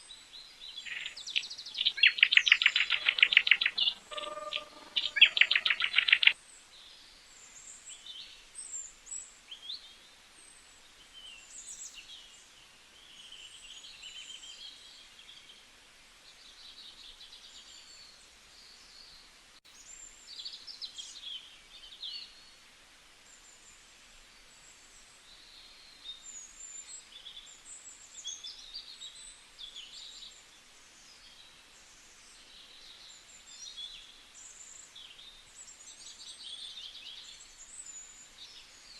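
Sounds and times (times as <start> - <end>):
birds chirping and whistling: 0.8 - 6.4
bird trilling: 0.9 - 6.4.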